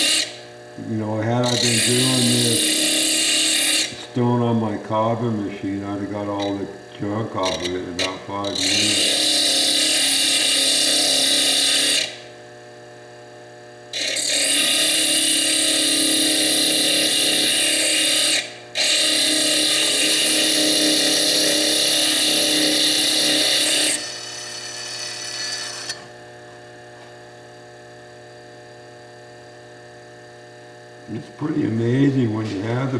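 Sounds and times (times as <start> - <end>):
disc grinding into stone: 0.0 - 0.4, 1.2 - 12.2, 14.0 - 26.1
lathe motor humming: 0.0 - 12.3, 14.0 - 26.8.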